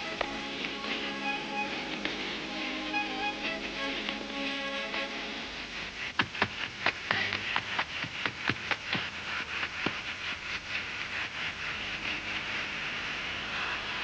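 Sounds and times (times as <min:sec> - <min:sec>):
soundtrack hiss: 0:00.0 - 0:14.0
sharp irregular taps: 0:06.2 - 0:10.0.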